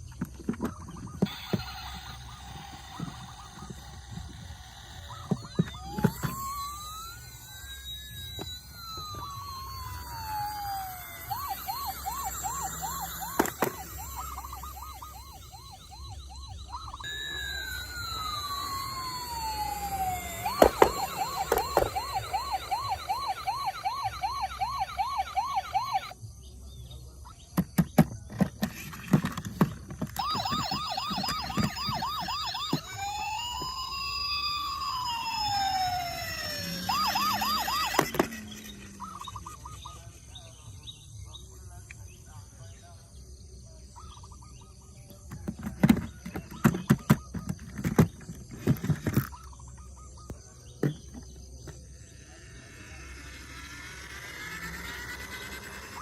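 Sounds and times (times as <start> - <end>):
toy electronic sirens wailing: 0.1 - 26.4, 27.3 - 40.9, 44.0 - 56.0
thin high tone: 1.2 - 26.1, 30.2 - 40.7, 50.9 - 56.0.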